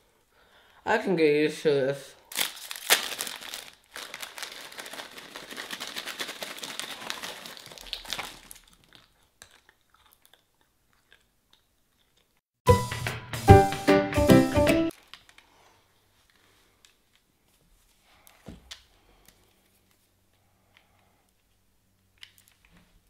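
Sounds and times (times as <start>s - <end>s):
crinkling and crunching: 2.3s - 12.4s
music: 12.7s - 14.9s.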